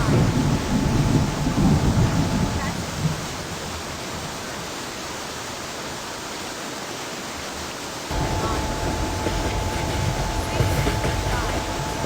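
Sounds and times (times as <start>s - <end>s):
train rushing: 0.0s - 3.2s, 8.1s - 12.0s
train low rumble: 0.0s - 3.5s, 8.1s - 12.0s
high whine: 8.1s - 12.0s.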